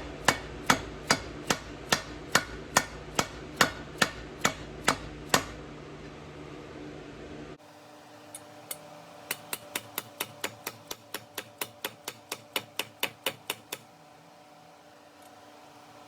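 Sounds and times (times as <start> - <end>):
hammer tapping metal driver: 0.2 - 5.6, 9.3 - 13.9.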